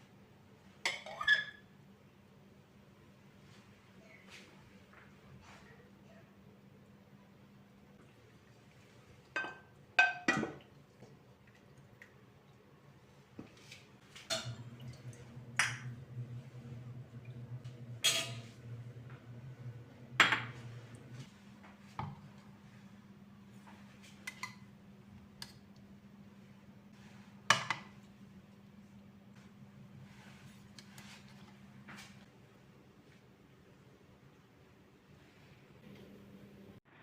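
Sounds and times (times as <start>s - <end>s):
low steady hum: 2.0s - 36.8s
dishes and cutlery clinking: 14.2s - 16.0s, 18.0s - 18.8s.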